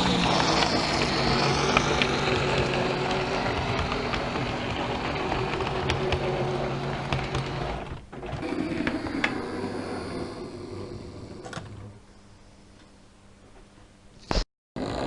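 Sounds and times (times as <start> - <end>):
model train motor humming: 0.0 - 7.9
train wheels clicking: 0.0 - 7.9.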